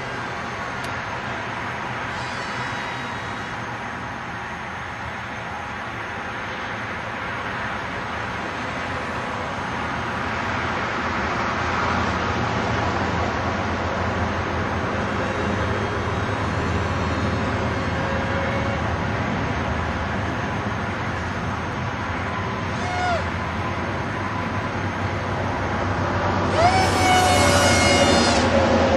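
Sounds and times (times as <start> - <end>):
model plane motor droning: 26.4 - 28.5.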